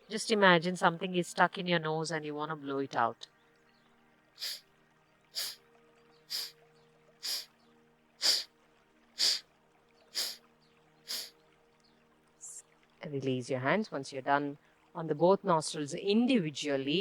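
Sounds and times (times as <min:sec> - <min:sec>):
sharp nasal exhalations: 0:04.4 - 0:04.6, 0:05.4 - 0:05.6, 0:06.3 - 0:06.6, 0:07.2 - 0:07.5, 0:08.2 - 0:08.5, 0:09.2 - 0:09.4, 0:10.2 - 0:10.4, 0:11.1 - 0:11.3.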